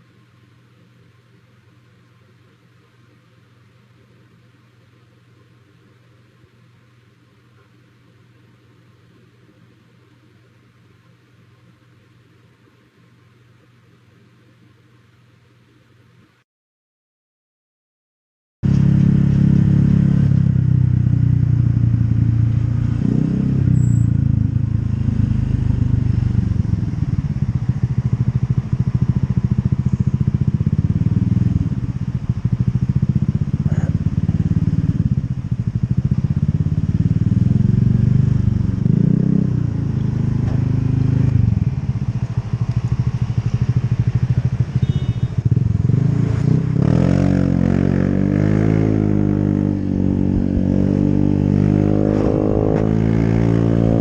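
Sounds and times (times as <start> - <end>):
motorcycle engine revving: 18.6 - 54.0.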